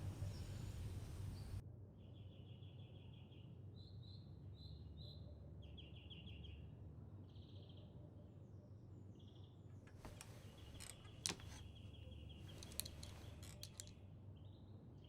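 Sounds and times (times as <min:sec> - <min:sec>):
low steady rumble: 0:00.0 - 0:01.6
songbird chirping and trilling: 0:00.0 - 0:06.7.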